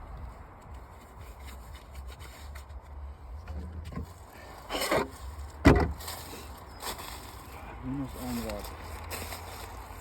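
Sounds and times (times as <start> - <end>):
handling rustle: 3.6 - 10.0.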